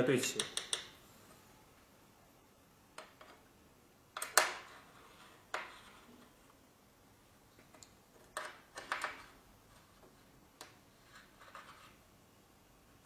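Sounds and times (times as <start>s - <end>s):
sharp metallic clicks and taps: 0.4s - 0.9s.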